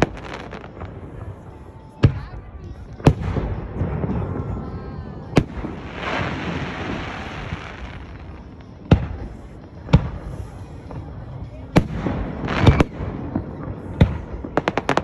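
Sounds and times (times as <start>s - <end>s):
firework hissing crackle: 4.8s - 15.0s.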